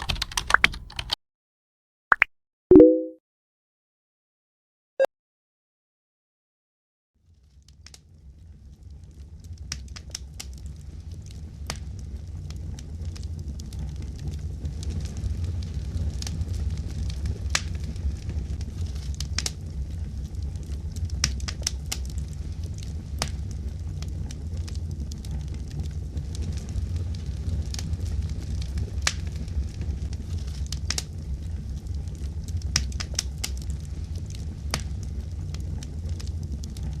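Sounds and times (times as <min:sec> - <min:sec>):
fire flames rumbling: 0:07.3 - 0:37.0
burning wood crackling and popping: 0:07.6 - 0:37.0.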